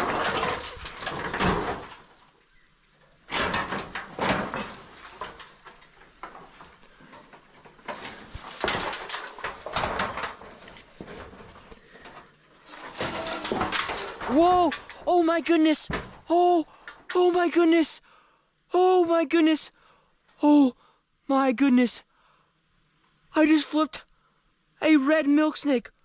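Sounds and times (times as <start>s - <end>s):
tin sheets scraping and rattling: 0.0s - 2.4s, 3.0s - 16.2s.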